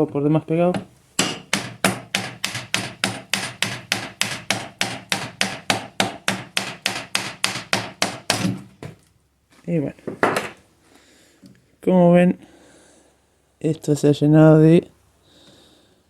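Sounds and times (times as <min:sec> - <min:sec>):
plastic mallet striking metal housing: 0:00.8 - 0:08.6.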